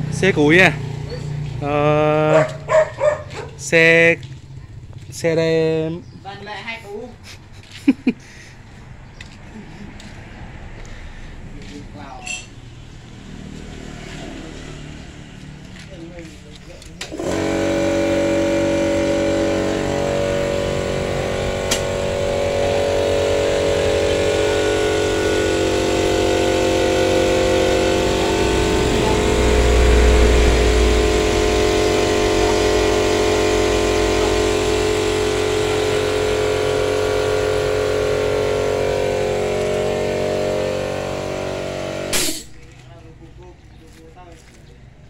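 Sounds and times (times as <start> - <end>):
diesel engine idling: 15.4 - 44.5.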